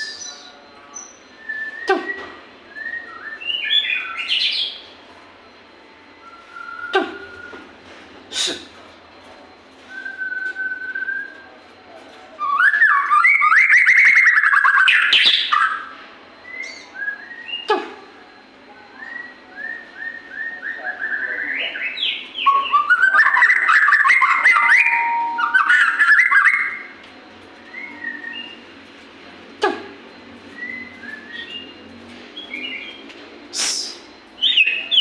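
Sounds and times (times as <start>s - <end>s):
songbird singing trills: 0.0s - 5.0s, 19.0s - 27.0s, 27.6s - 28.8s, 30.5s - 35.0s.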